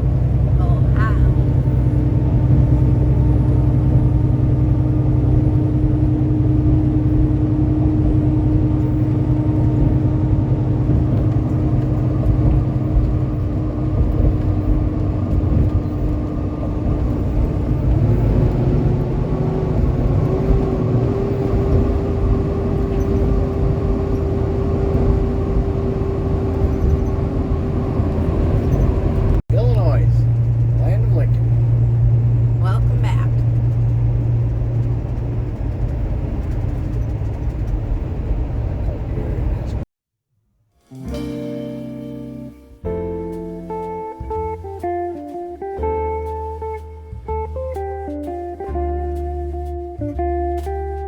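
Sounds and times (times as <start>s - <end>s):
constant hum: 0.0s - 39.8s
vehicle road and engine noise: 0.0s - 39.9s, 41.1s - 51.0s.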